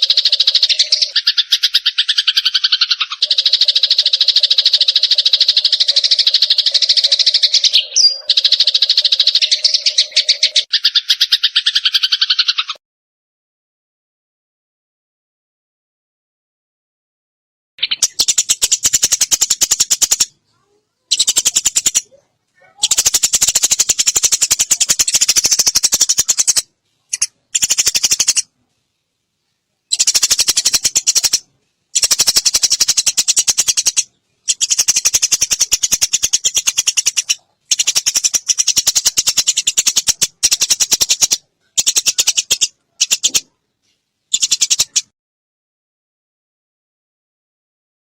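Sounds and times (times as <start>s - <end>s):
sparrows chirping in a fight: 0.0s - 12.8s, 17.8s - 28.5s, 29.9s - 43.6s, 44.3s - 45.1s.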